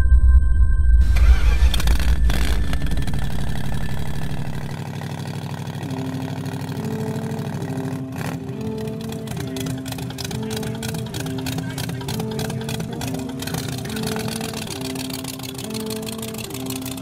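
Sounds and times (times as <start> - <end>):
car engine running: 1.0 - 17.0
music melody: 5.8 - 17.0.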